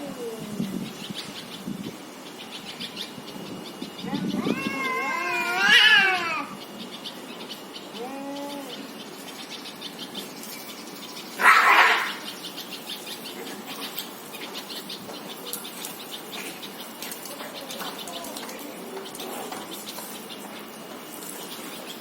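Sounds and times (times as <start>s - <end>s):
cats yowling and fighting: 4.0s - 6.6s, 7.9s - 8.8s, 11.4s - 12.3s.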